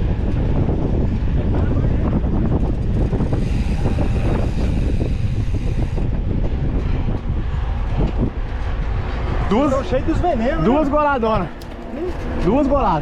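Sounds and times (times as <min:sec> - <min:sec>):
wind buffeting microphone: 0:00.0 - 0:13.0
bike knocks and rattles: 0:10.6 - 0:13.0.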